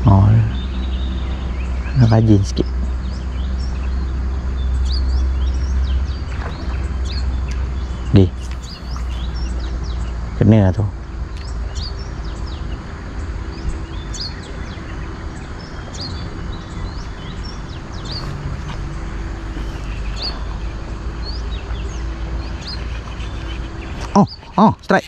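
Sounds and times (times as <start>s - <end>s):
small birds chirping: 0.0s - 25.0s
steady low hum: 0.0s - 25.0s.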